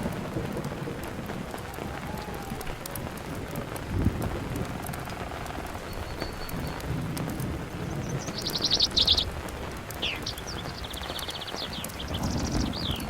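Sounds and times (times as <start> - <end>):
campfire crackles: 0.0 - 13.0
rain pattering: 0.0 - 13.0
bird trill: 8.0 - 9.3, 10.0 - 13.0
bird whistle: 8.2 - 9.2, 10.0 - 13.0.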